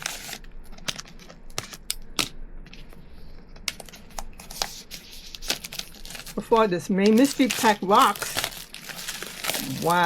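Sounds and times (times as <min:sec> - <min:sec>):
packaging clicks and crinkles: 0:03.7 - 0:10.0.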